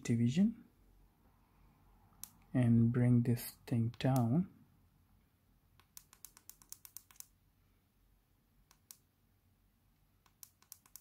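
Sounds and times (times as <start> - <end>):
push-buttons clicking: 10.3 - 11.0.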